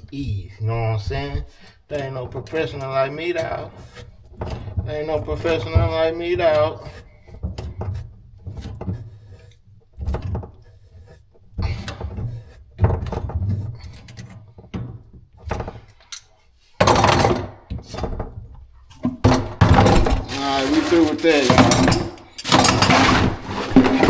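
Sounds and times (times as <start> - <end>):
plumbing tools knocking: 0.0 - 10.7, 16.8 - 24.0.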